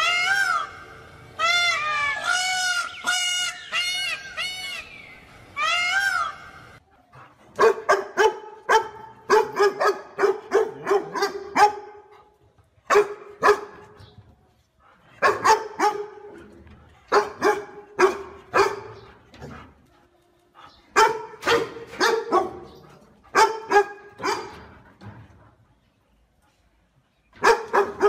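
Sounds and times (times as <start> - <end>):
dog barking: 7.6 - 12.1, 12.9 - 13.9, 15.2 - 16.3, 17.1 - 19.0, 21.0 - 24.7, 27.4 - 28.0.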